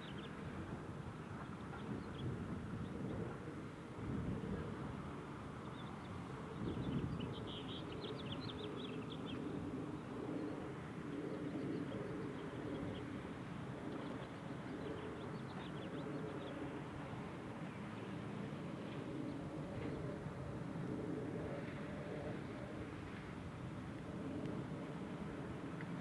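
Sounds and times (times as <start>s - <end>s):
small birds chirping: 5.6s - 9.5s.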